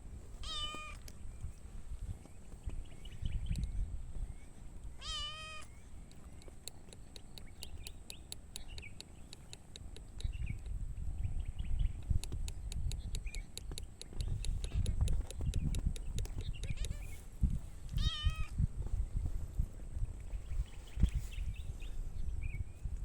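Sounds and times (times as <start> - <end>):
cat meowing: 0.4 - 1.0, 5.0 - 5.7, 18.0 - 18.5
faint higher cries: 0.4 - 1.1, 4.4 - 5.9
rapid faint clicking: 6.0 - 10.8, 12.0 - 17.1.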